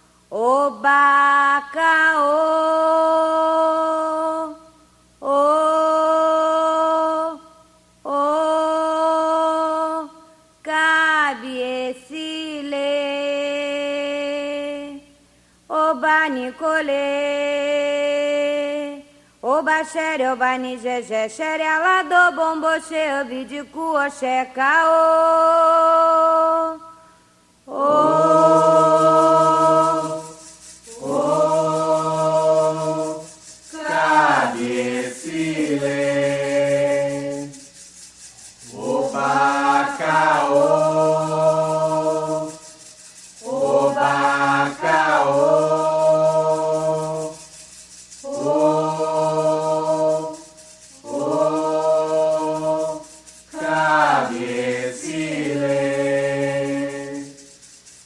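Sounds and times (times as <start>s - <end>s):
voices singing a chant unaccompanied: 27.7s - 57.6s.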